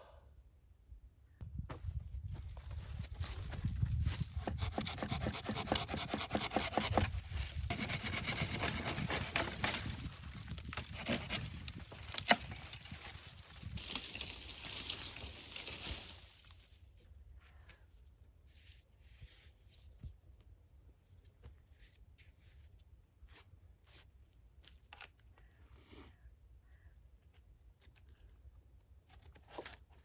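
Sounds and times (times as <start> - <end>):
scraping and rubbing wood: 4.4 - 13.2
sharp wood crack: 7.7 - 16.4.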